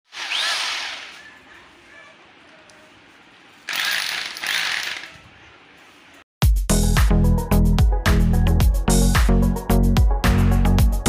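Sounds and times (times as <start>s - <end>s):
electric drill motor: 0.1s - 1.2s, 3.7s - 5.2s.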